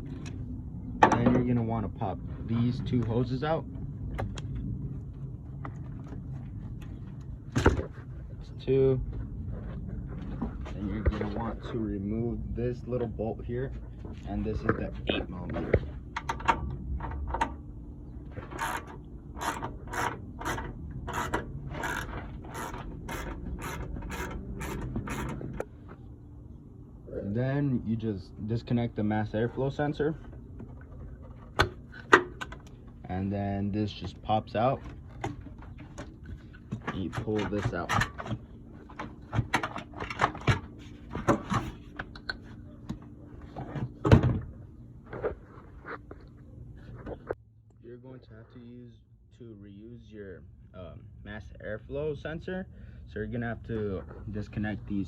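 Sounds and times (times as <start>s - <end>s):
hand ratchet clicking: 18.6s - 25.4s.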